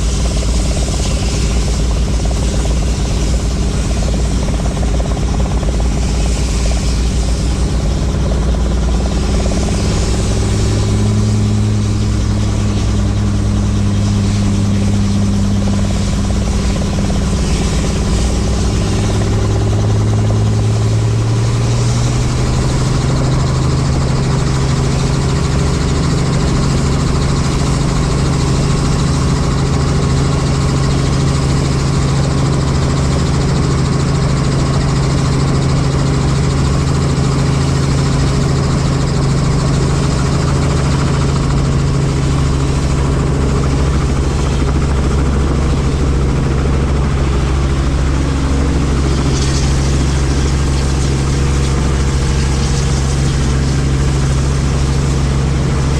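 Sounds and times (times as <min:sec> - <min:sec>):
helicopter rotor and engine drone: 0:00.0 - 0:55.9.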